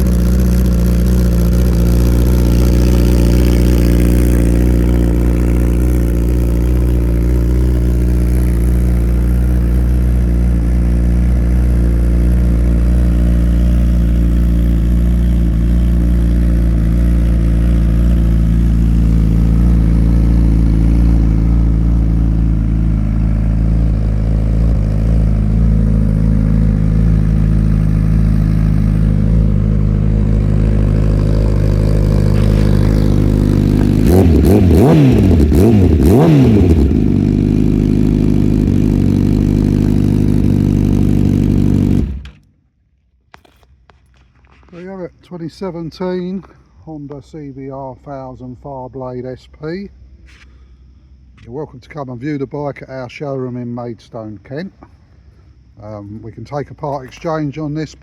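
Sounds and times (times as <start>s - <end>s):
motorcycle engine idling: 0.0s - 42.8s.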